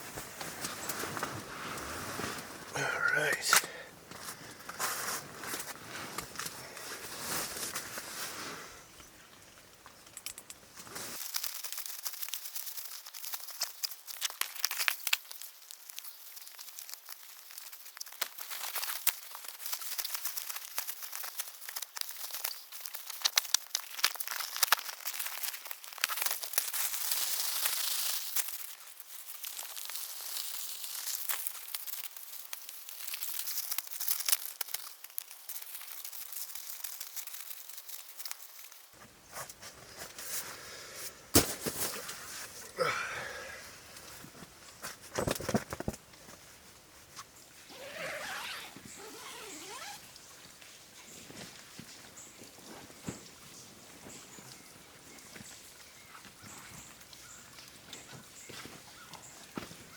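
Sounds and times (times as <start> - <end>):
gear rustling and crackling: 9.8 - 40.2, 47.6 - 50.1.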